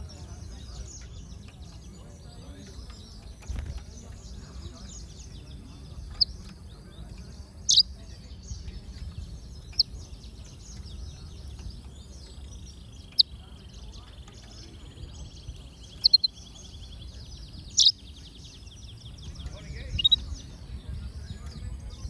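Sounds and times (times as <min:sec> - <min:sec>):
finches twittering: 0:00.0 - 0:22.0
steady low rumble: 0:00.0 - 0:22.0
fast even bird trill: 0:07.6 - 0:07.9, 0:16.0 - 0:16.4, 0:17.8 - 0:18.0, 0:19.9 - 0:20.3
loud sharp bird chirps: 0:07.6 - 0:08.0, 0:15.8 - 0:20.4.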